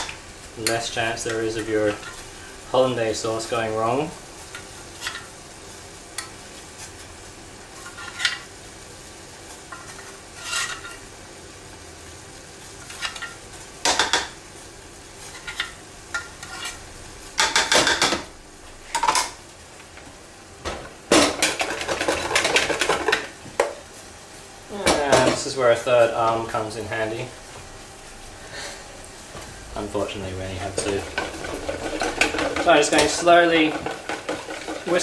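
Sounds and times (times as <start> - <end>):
metal utensils clinking on pans: 0.0 - 2.2, 9.7 - 11.0, 30.6 - 35.0.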